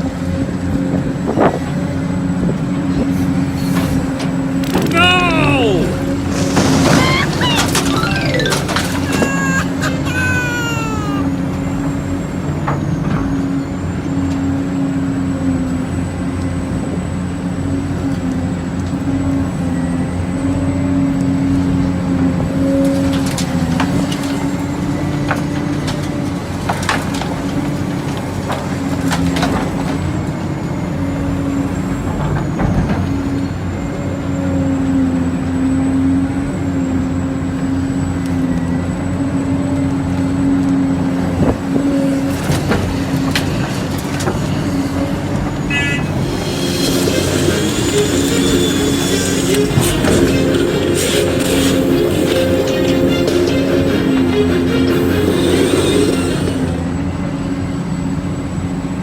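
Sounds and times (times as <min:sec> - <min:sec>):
diesel engine running: 0:37.1 - 0:58.9.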